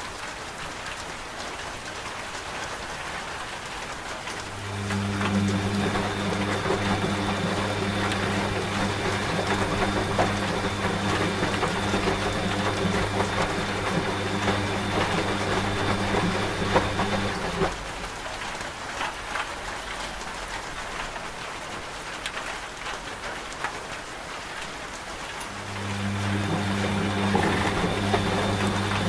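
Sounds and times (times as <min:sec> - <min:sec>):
continuous rain: 0:00.0 - 0:08.6, 0:17.4 - 0:27.4
washing machine motor humming: 0:04.3 - 0:18.4, 0:25.4 - 0:29.0.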